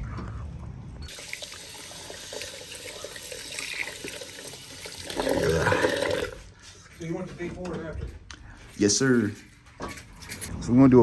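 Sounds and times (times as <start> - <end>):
water running into sink: 1.1 - 6.4.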